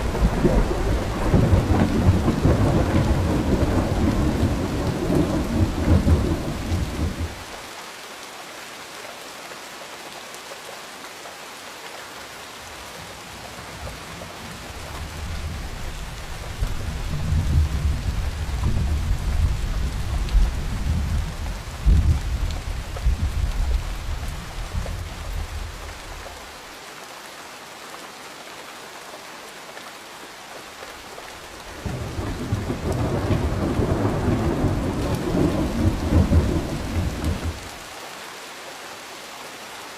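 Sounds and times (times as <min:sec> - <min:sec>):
thunder rumbling: 0:00.0 - 0:07.4, 0:15.0 - 0:25.8, 0:31.8 - 0:37.8
steady rain falling: 0:00.0 - 0:39.9.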